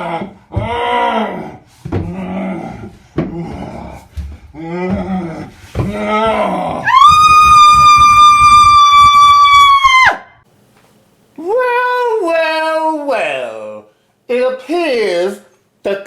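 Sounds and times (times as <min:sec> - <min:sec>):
long high-pitched cry: 0:06.8 - 0:10.3.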